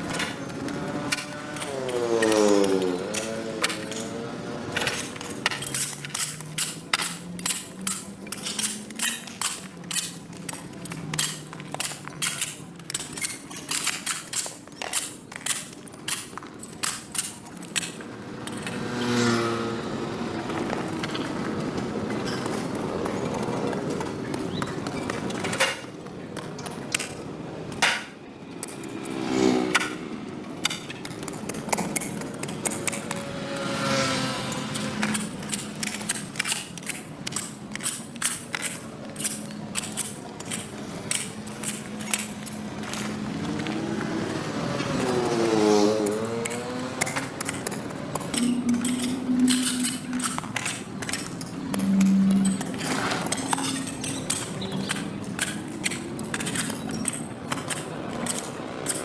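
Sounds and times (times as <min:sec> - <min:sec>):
hand tool striking pavement: 0:00.0 - 0:19.3, 0:27.8 - 0:59.0
rough noise: 0:31.7 - 0:36.8, 0:38.8 - 0:59.0.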